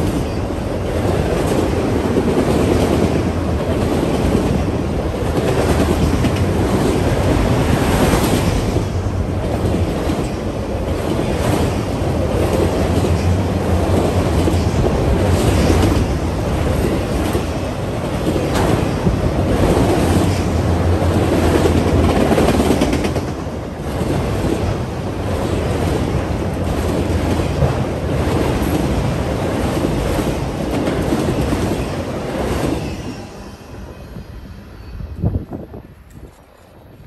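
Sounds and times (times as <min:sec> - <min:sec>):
steel wheels rumbling on rails: 0:00.0 - 0:37.0
clacks over rail joints: 0:21.2 - 0:24.7.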